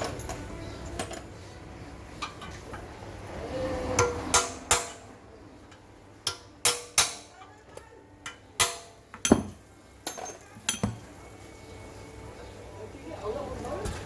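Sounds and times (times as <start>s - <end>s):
tool striking metal: 4.0s - 5.1s, 6.3s - 7.3s.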